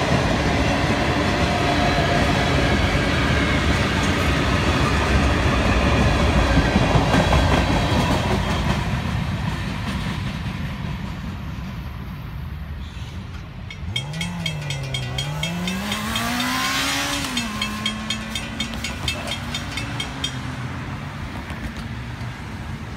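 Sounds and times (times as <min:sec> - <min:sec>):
train wheels rumbling on rails: 0:00.0 - 0:22.9
crossing bell ringing rapidly: 0:13.6 - 0:20.8
vehicle engine revving: 0:14.0 - 0:18.3.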